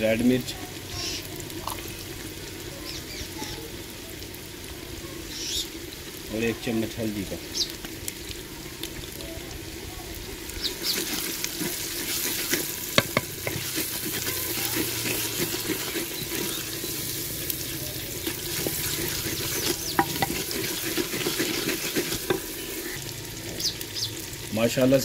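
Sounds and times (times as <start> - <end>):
masala sizzling in oil: 0.0 - 25.0
wooden ladle scraping pot: 10.6 - 23.0.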